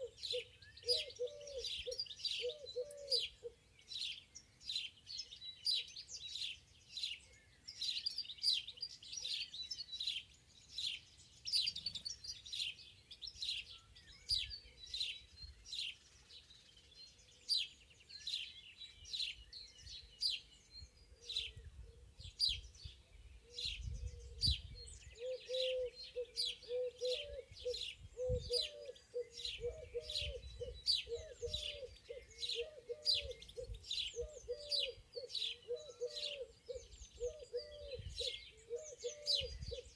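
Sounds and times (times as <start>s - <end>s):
songbirds chirping: 0.0s - 39.9s
lower bird call: 23.4s - 39.9s.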